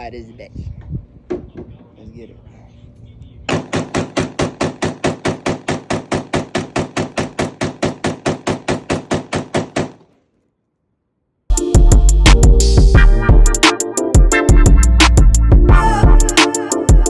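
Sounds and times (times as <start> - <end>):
rapid pistol gunfire: 3.5 - 10.2.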